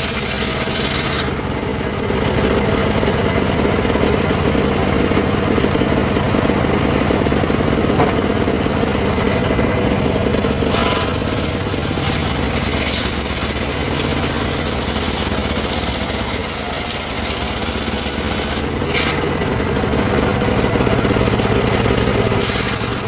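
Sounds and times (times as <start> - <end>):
engine-powered wood saw running: 0.0 - 23.0
brief high hiss: 10.7 - 11.2.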